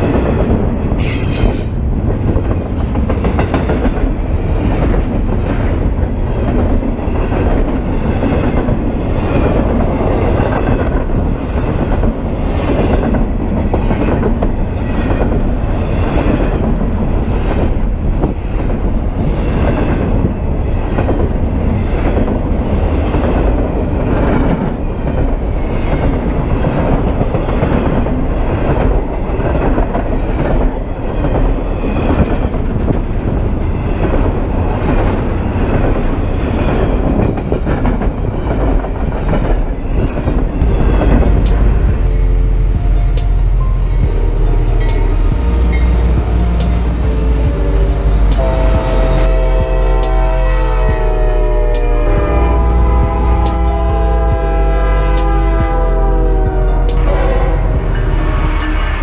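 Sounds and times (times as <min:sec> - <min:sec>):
steel wheels rumbling on rail: 0:00.0 - 0:59.0
train trucks clattering: 0:00.0 - 0:59.0.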